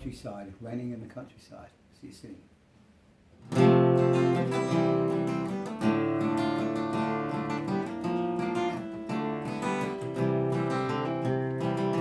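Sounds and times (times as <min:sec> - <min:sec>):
acoustic guitar strummed and picked: 0:03.4 - 0:12.0.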